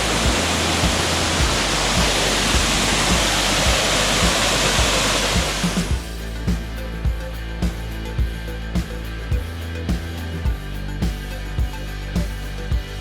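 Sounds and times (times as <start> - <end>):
waterfall rushing: 0.0 - 6.0
music with a steady beat: 0.0 - 13.0.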